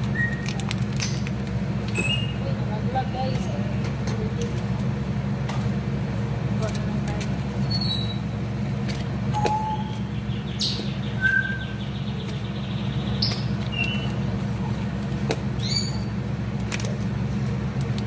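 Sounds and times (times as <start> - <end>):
bird-like chirps and tweets: 1.9 - 2.5, 7.6 - 8.3, 9.3 - 14.2, 15.6 - 16.1.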